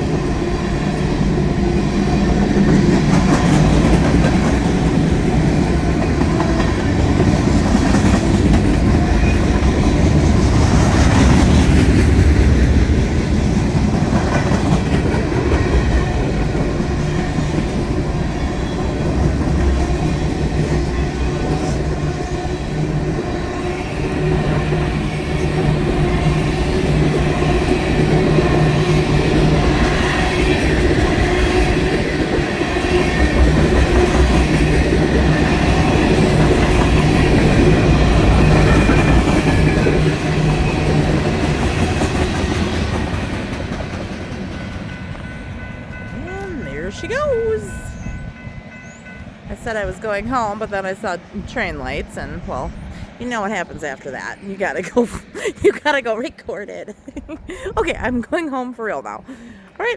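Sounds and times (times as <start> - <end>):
wheels clacking over rail joints: 0.0 - 47.1
freight train rumbling past: 0.0 - 59.9.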